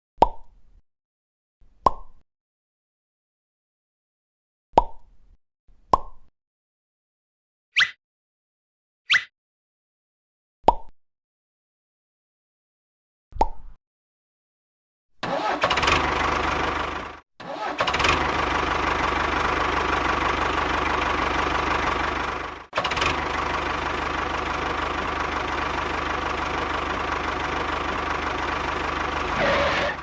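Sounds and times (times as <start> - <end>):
small engine running: 15.2 - 30.0.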